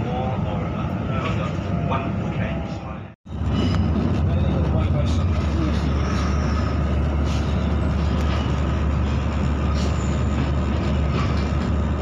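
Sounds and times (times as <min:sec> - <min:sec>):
train rumble and hum: 0:00.0 - 0:12.0.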